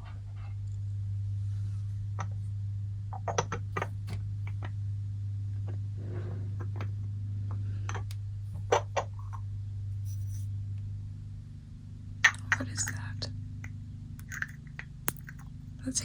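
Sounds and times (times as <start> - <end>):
small items clicking and knocking: 14.2 - 15.5.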